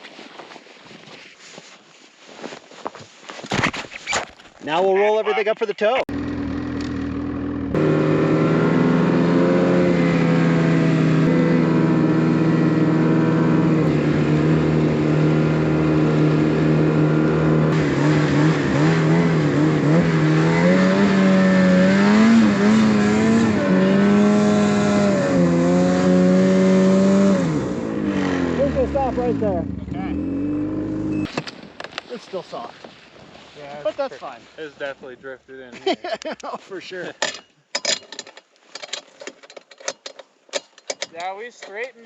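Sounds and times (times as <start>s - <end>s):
snowmobile engine running: 6.1s - 31.3s.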